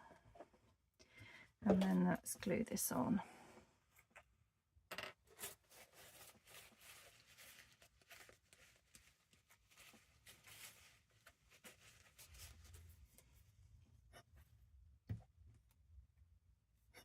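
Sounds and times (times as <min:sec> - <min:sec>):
paper and fabric rustling: 0:05.3 - 0:13.6.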